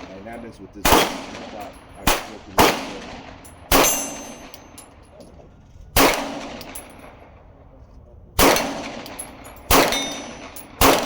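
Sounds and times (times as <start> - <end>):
handgun shots: 0.8 - 3.1, 3.7 - 4.6, 8.4 - 11.0.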